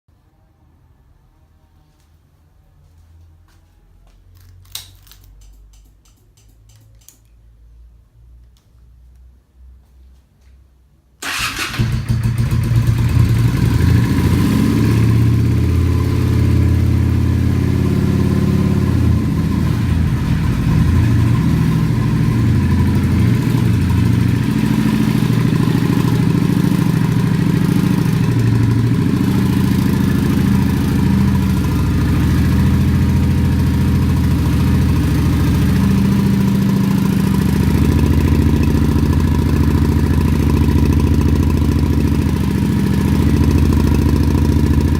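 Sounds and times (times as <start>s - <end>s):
motorcycle engine idling: 11.2s - 14.3s, 15.1s - 44.9s
motorcycle engine starting: 11.2s - 44.9s.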